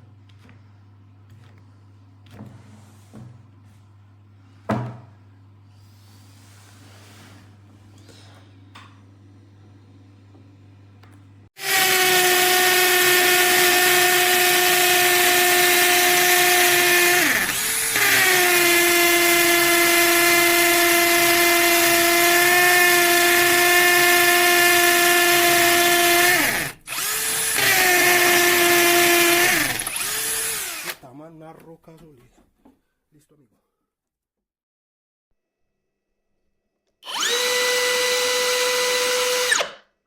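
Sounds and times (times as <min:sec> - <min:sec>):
cordless drill motor whining: 0:11.6 - 0:31.0, 0:37.0 - 0:39.8.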